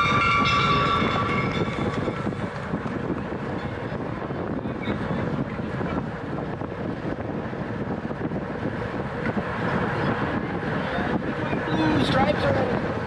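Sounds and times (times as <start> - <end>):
low rumble: 0.0 - 11.6
wind rushing across microphone: 0.0 - 13.0.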